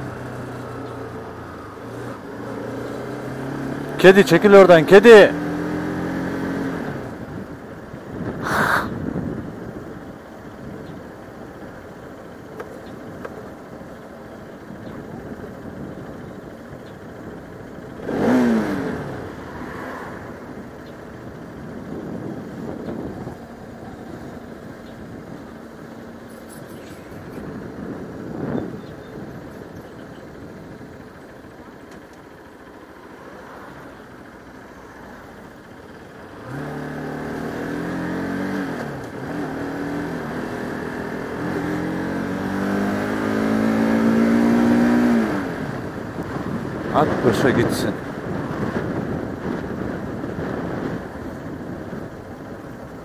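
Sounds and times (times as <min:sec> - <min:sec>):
vehicle passing by close: 0:00.0 - 0:07.3, 0:18.0 - 0:25.4, 0:32.5 - 0:52.1
motorcycle engine: 0:00.0 - 0:53.0
wind noise: 0:07.2 - 0:11.0, 0:19.4 - 0:25.5, 0:26.3 - 0:30.9, 0:42.2 - 0:53.0
wind rush: 0:08.1 - 0:09.7.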